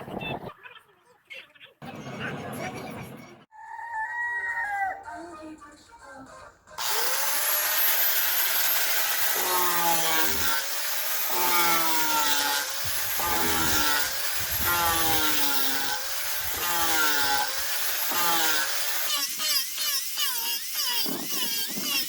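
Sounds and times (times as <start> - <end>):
power sander grinding wood: 6.8 - 22.0.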